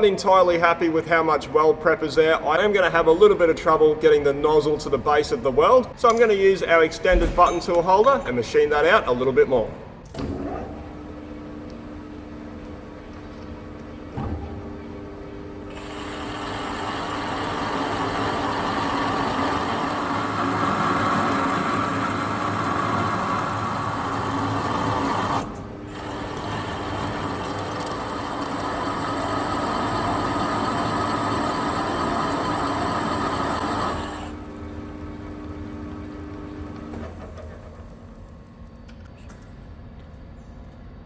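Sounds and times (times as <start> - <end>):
lathe motor hum: 10.3 - 38.3
grinding metal cutting: 10.9 - 34.8.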